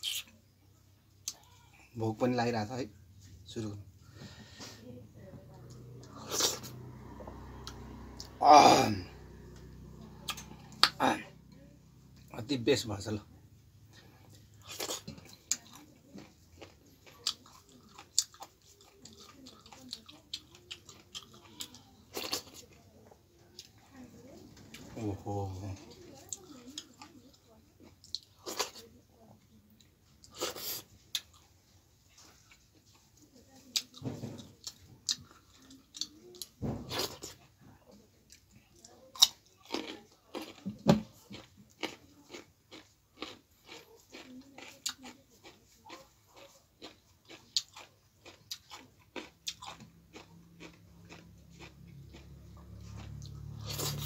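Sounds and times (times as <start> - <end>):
wet chewing with mouth clicks: 13.9 - 24.0, 25.8 - 29.0, 29.6 - 54.0.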